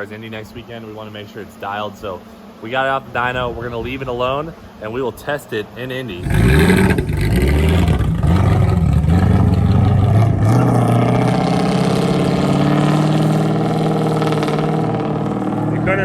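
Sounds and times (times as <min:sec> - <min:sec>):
car engine revving: 0:06.2 - 0:16.0.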